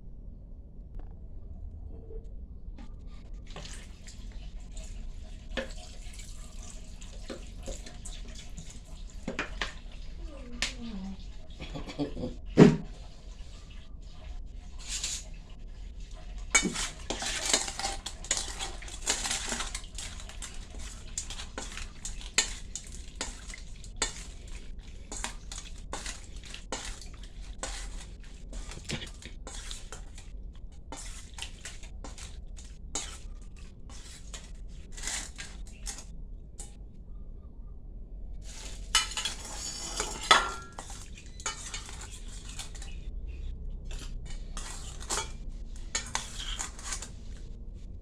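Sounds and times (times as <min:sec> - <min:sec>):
utensil scraping against dish: 0:16.0 - 0:30.3, 0:30.9 - 0:36.1, 0:38.4 - 0:43.1, 0:43.9 - 0:47.5.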